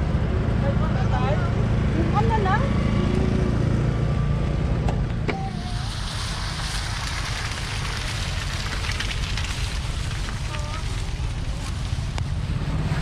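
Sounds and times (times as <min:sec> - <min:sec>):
vehicle engine running: 0:00.0 - 0:13.0
wet road hiss: 0:05.5 - 0:13.0.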